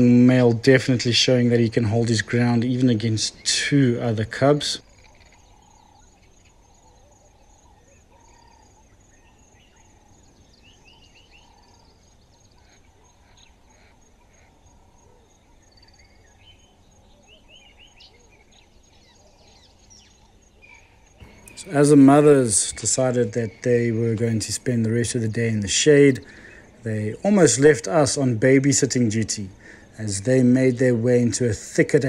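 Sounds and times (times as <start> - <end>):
faint birdsong: 0.0 - 32.0
steady high hum: 0.0 - 32.0.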